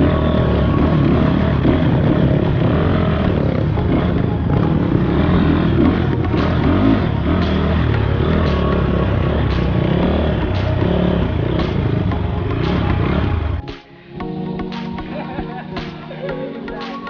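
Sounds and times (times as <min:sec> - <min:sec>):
dirt bike engine: 0:00.0 - 0:13.7.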